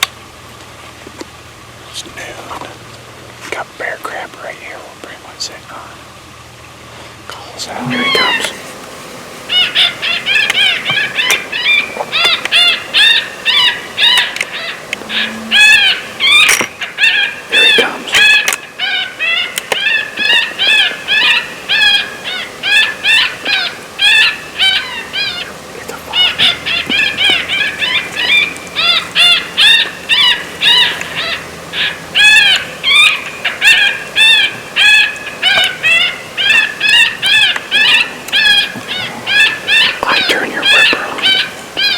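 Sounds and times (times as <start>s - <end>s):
electronic animal distress cries: 7.7s - 8.7s, 9.5s - 41.9s
high arching squeals: 7.7s - 41.9s.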